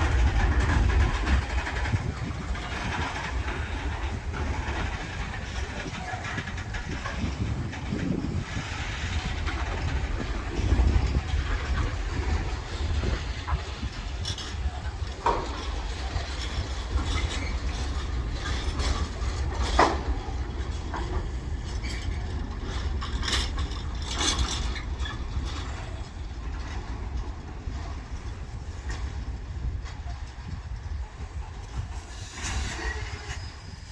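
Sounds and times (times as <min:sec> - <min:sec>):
train clicks: 0:00.0 - 0:33.9
train rumble: 0:00.0 - 0:33.9.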